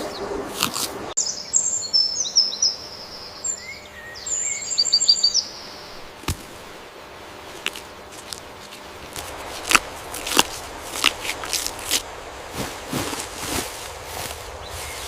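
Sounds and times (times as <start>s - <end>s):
songbird chirping and trilling: 0.0s - 6.2s, 14.2s - 15.0s.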